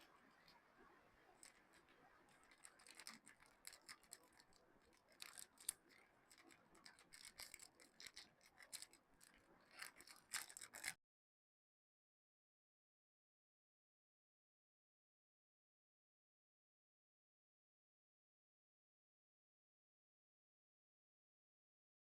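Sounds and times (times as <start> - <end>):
wrapper crinkling and rustling: 2.4 - 4.5, 5.1 - 9.0, 9.7 - 10.9.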